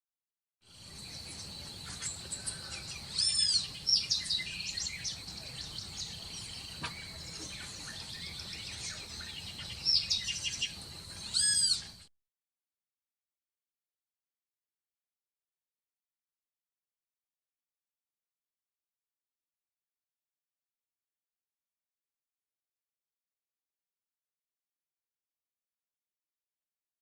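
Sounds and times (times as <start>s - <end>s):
birds singing and chirping: 0.7s - 12.1s.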